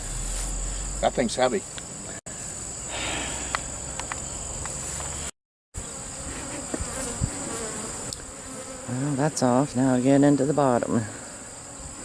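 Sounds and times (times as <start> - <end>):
honey bees buzzing loudly: 5.8 - 12.0.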